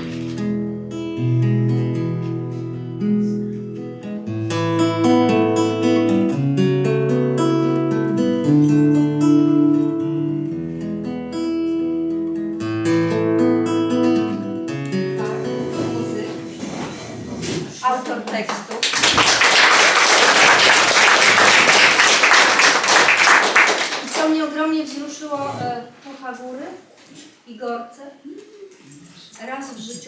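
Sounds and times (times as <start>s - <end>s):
acoustic guitar playing: 0.0s - 17.3s, 19.4s - 24.0s.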